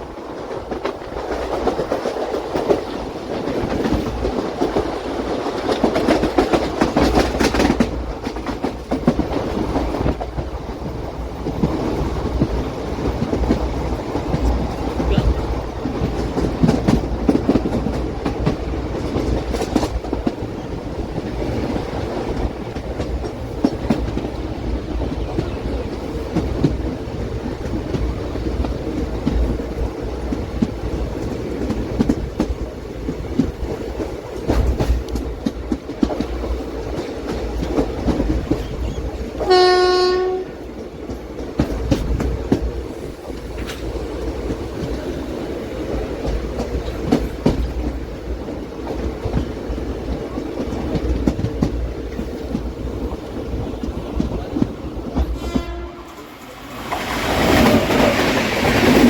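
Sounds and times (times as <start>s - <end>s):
train rumbling at speed: 0.0s - 59.0s
wheels clacking over rail joints: 0.0s - 59.0s
locomotive horn blast: 39.4s - 40.6s, 55.3s - 56.3s.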